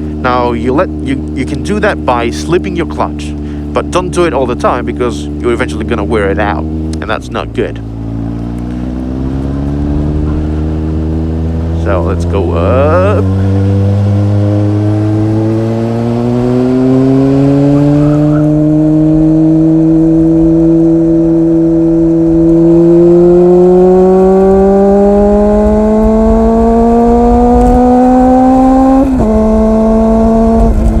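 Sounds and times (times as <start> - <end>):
motorcycle engine revving uphill: 0.0 - 31.0
wind rumble on microphone: 17.7 - 31.0.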